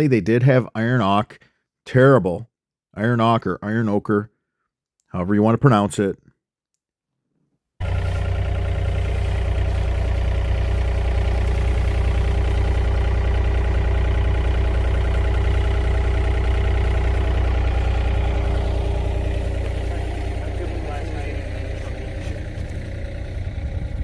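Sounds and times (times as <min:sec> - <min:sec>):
heavy machine engine humming: 0:07.8 - 0:24.0.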